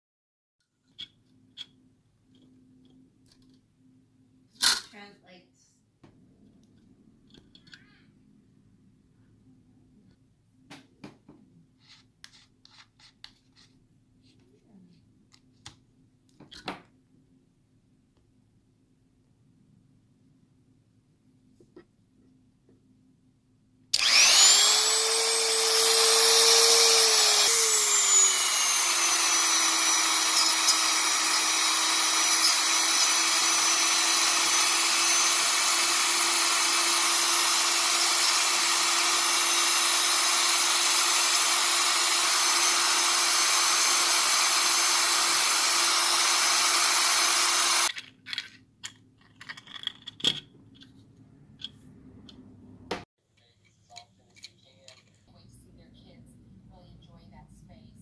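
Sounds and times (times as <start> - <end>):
rotary power tool whining: 24.0 - 47.9.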